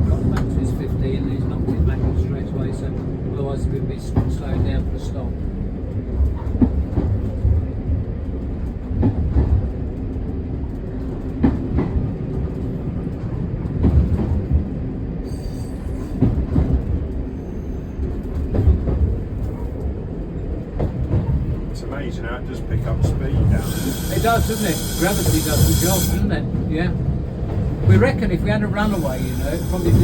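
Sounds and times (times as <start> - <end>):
train engine rumble: 0.0 - 30.0.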